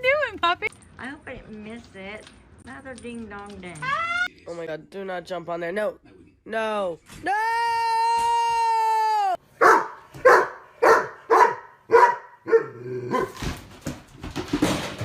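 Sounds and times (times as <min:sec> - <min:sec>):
dog barking: 0:09.6 - 0:13.4.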